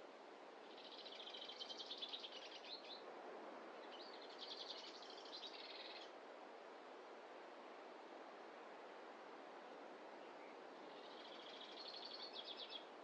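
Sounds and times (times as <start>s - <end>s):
songbird singing: 0.7s - 3.0s, 3.8s - 6.1s, 10.3s - 12.9s.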